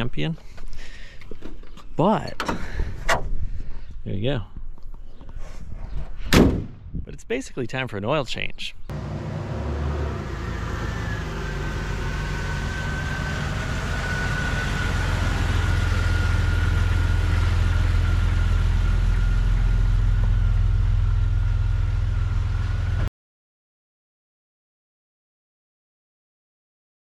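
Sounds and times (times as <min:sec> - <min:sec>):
car engine running: 0:08.9 - 0:23.1
thin steady whine: 0:10.4 - 0:23.1.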